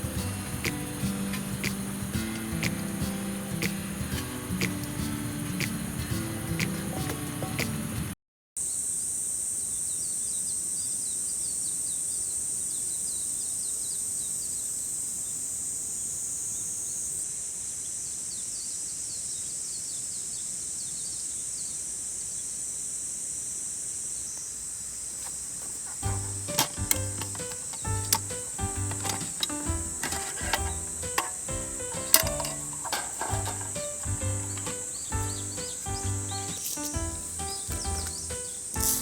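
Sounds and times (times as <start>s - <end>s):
quick high chirps: 0.0s - 7.8s, 25.9s - 39.0s
insects buzzing drone: 0.0s - 39.0s.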